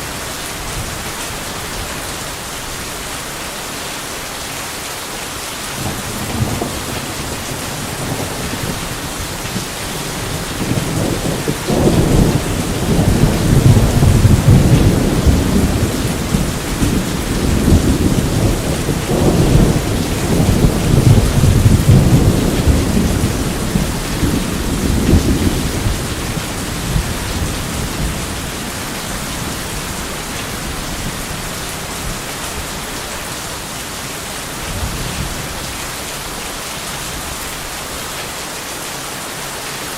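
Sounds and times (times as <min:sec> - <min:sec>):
heavy rain: 0:00.0 - 0:39.9
thunder rumbling: 0:05.8 - 0:32.9.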